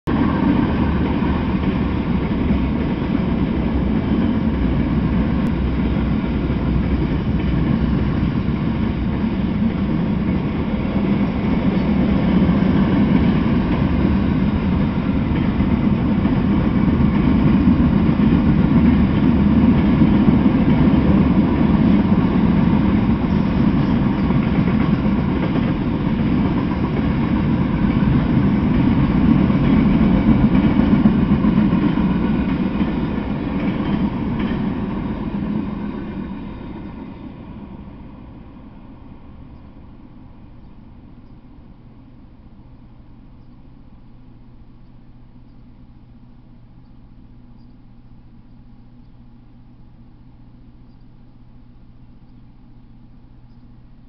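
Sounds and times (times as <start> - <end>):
train wheels rumbling on rail: 0.1 - 42.2.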